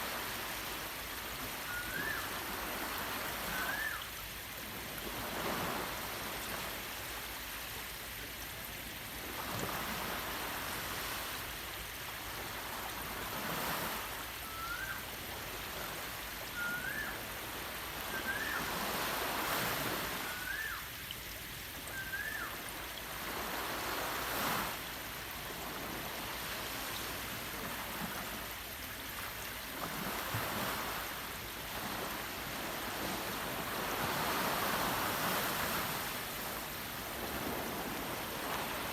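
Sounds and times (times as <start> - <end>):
waves washing in: 0.0 - 38.9
bird whistled chirp: 1.6 - 2.4, 3.5 - 4.1, 14.4 - 15.0, 16.5 - 17.2, 18.1 - 18.7, 20.2 - 20.9, 21.9 - 22.6.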